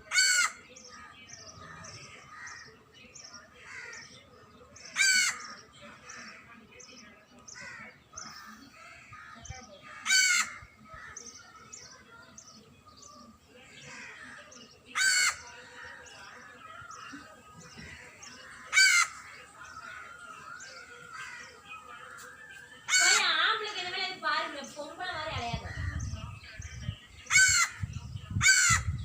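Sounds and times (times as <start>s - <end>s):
bird harsh call: 0.0s - 2.8s, 3.6s - 6.5s, 7.5s - 12.6s, 13.7s - 23.5s, 27.2s - 29.0s
small birds chirping: 0.0s - 29.0s.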